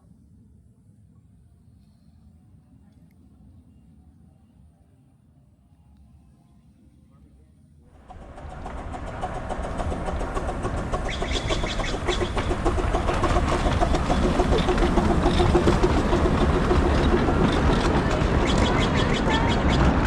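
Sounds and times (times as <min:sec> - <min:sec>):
miniature train wheels clicking: 0:08.0 - 0:20.0.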